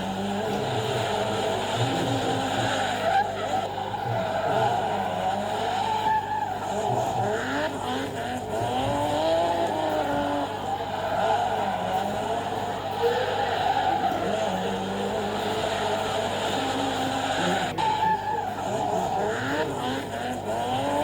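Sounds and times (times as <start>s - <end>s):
car engines revving: 0.0s - 21.0s
tires squealing: 0.0s - 21.0s.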